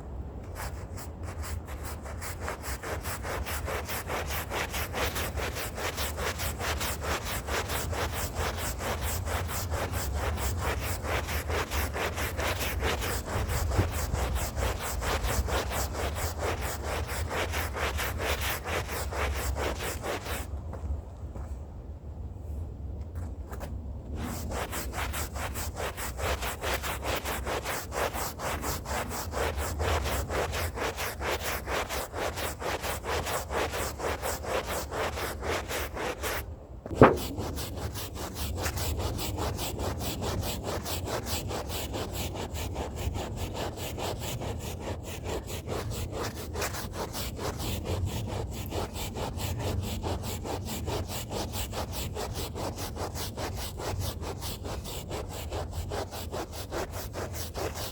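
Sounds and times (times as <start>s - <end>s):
brush scrubbing a rug: 0.5s - 20.5s, 24.1s - 57.9s
sharp knock: 36.9s - 37.7s.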